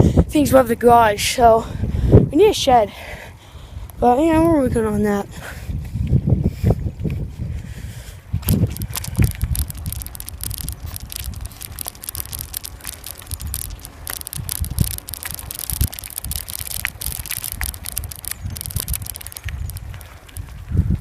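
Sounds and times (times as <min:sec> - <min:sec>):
wind rumbling on microphone: 0:00.0 - 0:21.0
bicycle rattles and clicks: 0:05.5 - 0:21.0.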